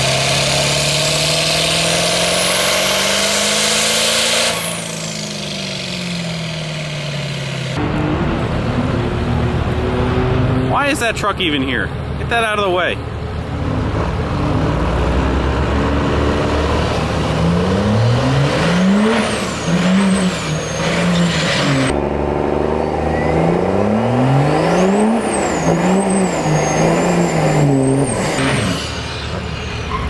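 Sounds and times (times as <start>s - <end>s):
truck engine accelerating: 0.0s - 30.0s
turbo whistle: 23.0s - 23.7s.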